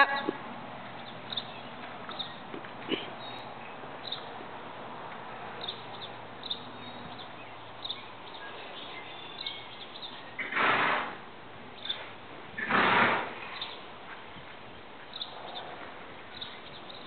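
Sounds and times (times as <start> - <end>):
small birds chirping: 0.9 - 4.5, 5.4 - 10.4, 11.7 - 12.1, 13.4 - 17.0.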